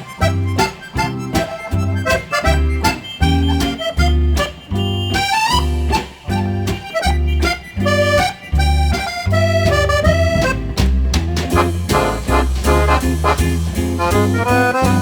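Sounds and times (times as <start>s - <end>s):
accordion melody: 0.0s - 15.0s.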